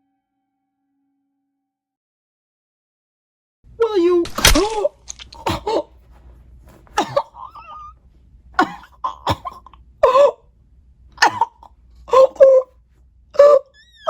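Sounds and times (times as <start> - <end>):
person coughing and gasping: 4.4 - 6.0, 6.9 - 7.9, 8.6 - 10.5, 11.2 - 12.7.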